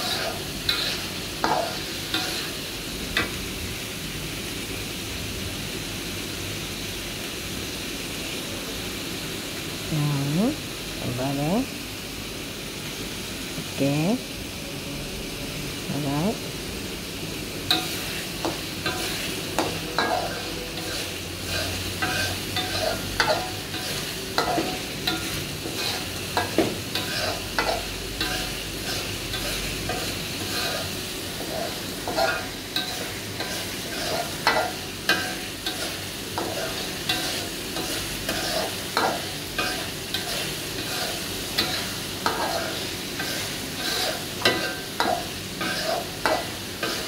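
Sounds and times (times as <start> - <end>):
spatula scraping a pan: 0.0 - 2.6, 17.7 - 47.0
paste sizzling in oil: 0.0 - 47.0.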